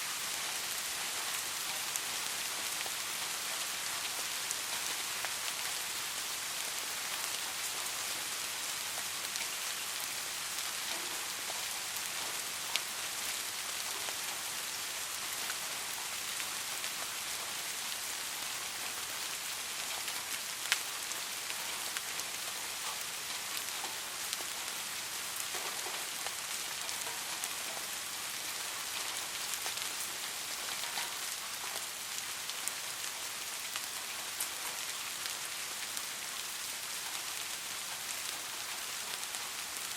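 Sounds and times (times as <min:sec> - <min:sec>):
soft rain hissing: 0:00.0 - 0:39.9
raindrops ticking: 0:19.8 - 0:32.8.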